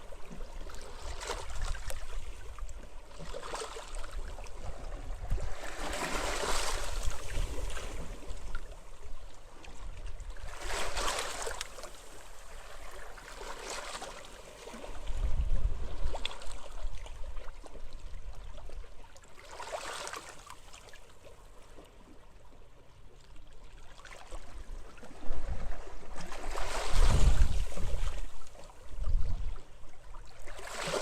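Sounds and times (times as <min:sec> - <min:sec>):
wind gusting over microphone: 0:26.6 - 0:28.2.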